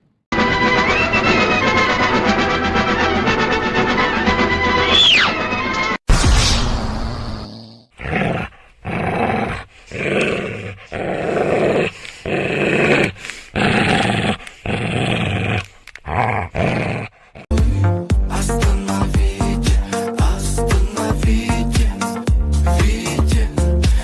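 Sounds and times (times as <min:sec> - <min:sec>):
pet animal growling: 0:07.4 - 0:17.5.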